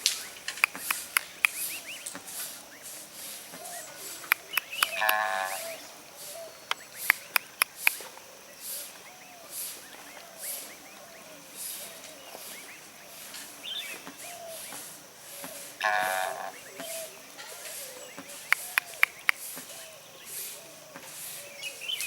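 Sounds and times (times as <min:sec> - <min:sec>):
sharp clicks: 0:00.0 - 0:02.2, 0:04.2 - 0:05.3, 0:06.7 - 0:08.0, 0:18.4 - 0:19.4
swan cygnets peeping: 0:00.0 - 0:02.2, 0:04.0 - 0:05.8.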